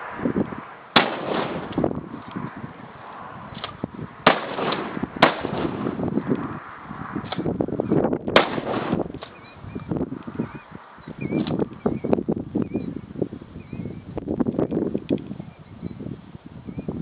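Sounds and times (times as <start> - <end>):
sharp crack: 0.9 - 2.4, 3.5 - 6.5, 7.2 - 7.6, 8.3 - 9.4
shotgun shots: 1.0 - 1.9, 4.2 - 6.0, 8.4 - 9.3.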